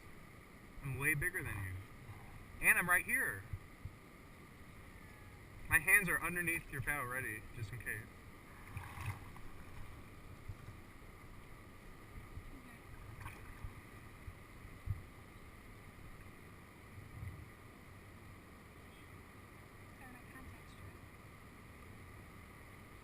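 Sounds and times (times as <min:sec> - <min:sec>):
wind rumble on microphone: 0:03.4 - 0:04.0, 0:08.5 - 0:11.0, 0:12.0 - 0:15.2, 0:16.0 - 0:17.6
water moving around kayak: 0:08.2 - 0:17.6.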